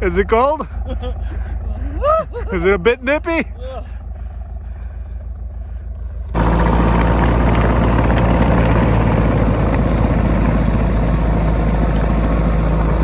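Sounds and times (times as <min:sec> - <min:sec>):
diesel engine running: 0:03.7 - 0:13.0.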